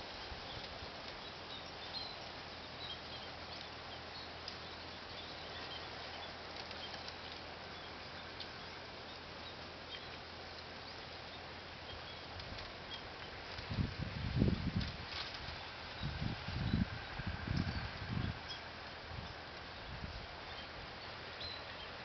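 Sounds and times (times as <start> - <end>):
small birds chirping: 0.0 - 22.0
steady background hiss: 0.0 - 22.0.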